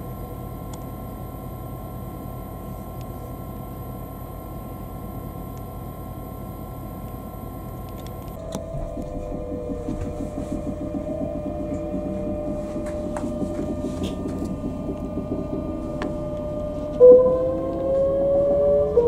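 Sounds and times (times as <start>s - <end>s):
traction motors whining: 7.9s - 19.0s.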